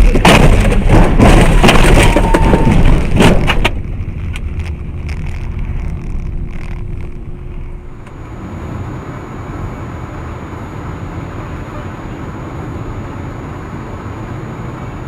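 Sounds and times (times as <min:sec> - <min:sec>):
sharp knocks and cracks: 0:00.0 - 0:07.2
faint steady hum: 0:00.0 - 0:15.0
low vehicle rumble: 0:00.0 - 0:15.0.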